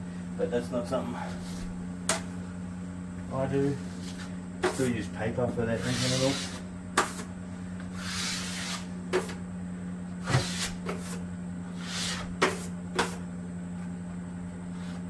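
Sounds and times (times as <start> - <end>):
taping knife scraping compound: 3.7 - 5.1, 5.7 - 9.4, 10.2 - 13.3.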